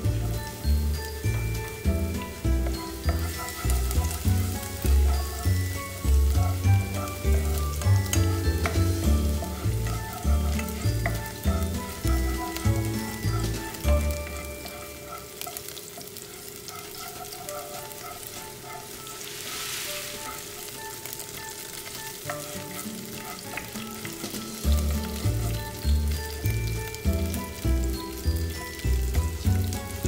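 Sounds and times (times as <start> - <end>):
background music with bass: 0.0 - 14.7, 24.6 - 30.0
garlic sizzling in oil: 0.0 - 30.0.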